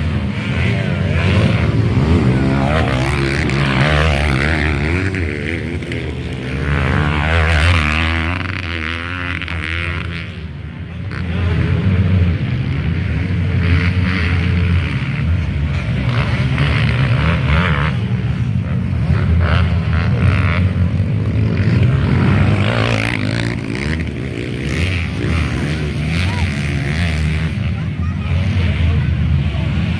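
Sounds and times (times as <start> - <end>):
dirt bike engines revving: 0.0 - 29.9.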